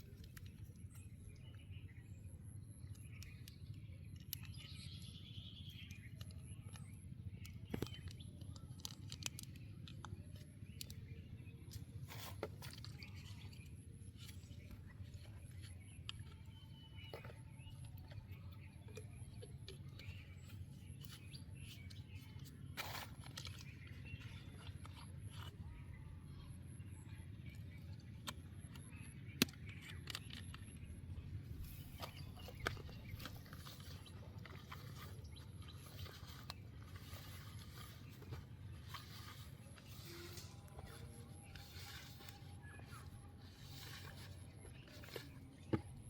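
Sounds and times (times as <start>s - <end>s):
small birds chirping: 0.0s - 46.0s.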